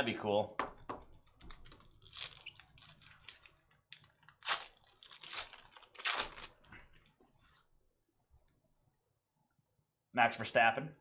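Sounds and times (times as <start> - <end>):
wrapper crinkling: 1.2 - 7.1
cards rustling: 1.4 - 7.0.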